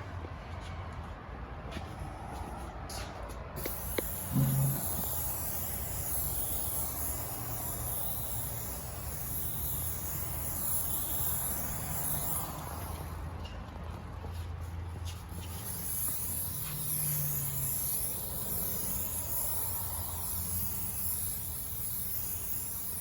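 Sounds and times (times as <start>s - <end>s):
spray hissing: 3.6s - 13.2s, 15.3s - 23.0s.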